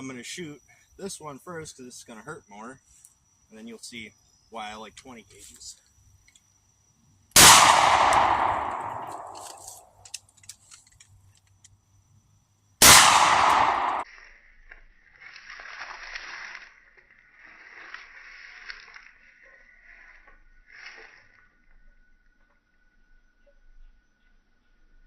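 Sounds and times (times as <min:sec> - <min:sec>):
shotgun shots: 0:07.4 - 0:09.6, 0:12.8 - 0:14.0.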